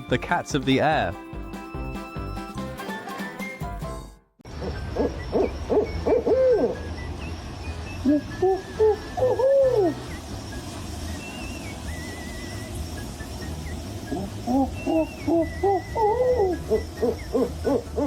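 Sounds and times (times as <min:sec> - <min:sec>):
background music: 0:00.0 - 0:10.0
owl hooting: 0:04.5 - 0:10.3, 0:11.2 - 0:18.0.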